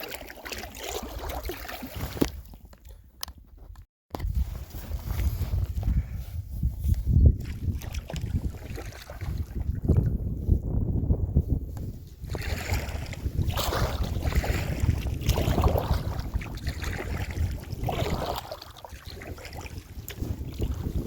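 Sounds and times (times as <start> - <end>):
paddle strokes swishing through water: 0.0 - 3.0, 4.8 - 10.7, 11.4 - 21.0
wind rumble on microphone: 3.3 - 21.0.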